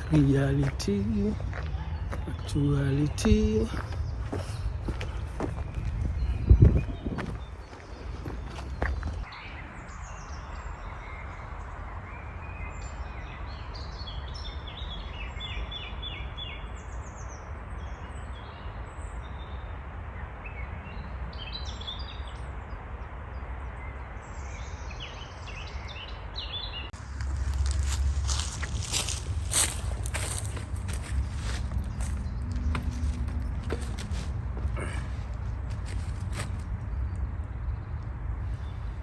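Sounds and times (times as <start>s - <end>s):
footsteps: 0.0s - 9.3s, 27.0s - 36.9s
songbirds singing and chirping: 0.0s - 39.0s.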